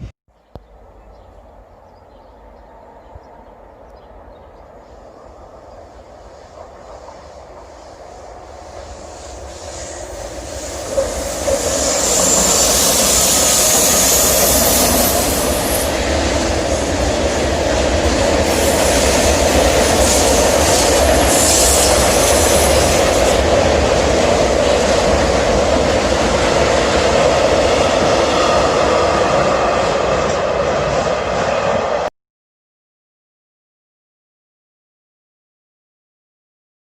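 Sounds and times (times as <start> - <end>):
train rail rumble: 0.0 - 32.1
high hiss: 4.9 - 16.1, 18.4 - 23.5.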